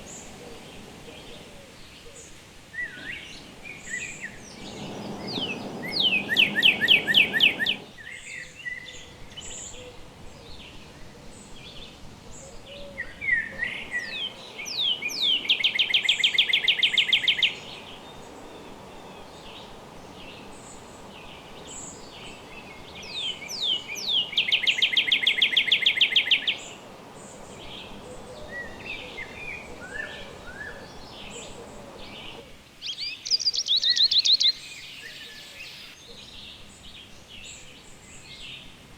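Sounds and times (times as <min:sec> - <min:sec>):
songbird singing with trill: 0:00.0 - 0:38.6
soft bird chirps: 0:00.0 - 0:38.7
low background hiss: 0:00.0 - 0:38.9.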